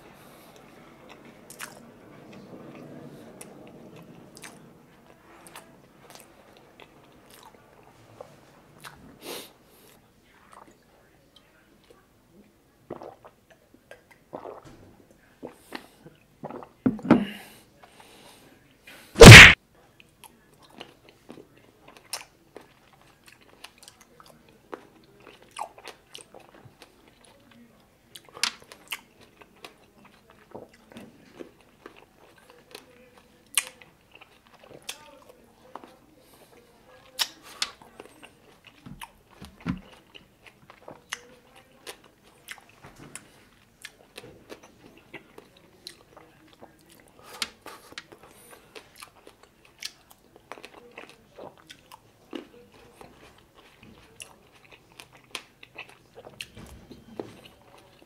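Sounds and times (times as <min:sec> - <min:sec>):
grapes crunching: 0:19.2 - 0:19.6
wet chewing: 0:19.2 - 0:19.6, 0:28.2 - 0:58.0.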